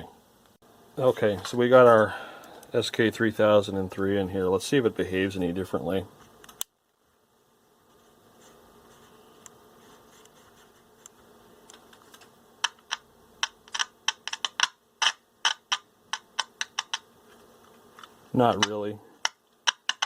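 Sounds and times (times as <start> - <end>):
radio speaker hiss with low hum: 0.0 - 7.2, 7.9 - 19.4
sharp pops and clicks: 11.0 - 17.1, 18.0 - 20.0.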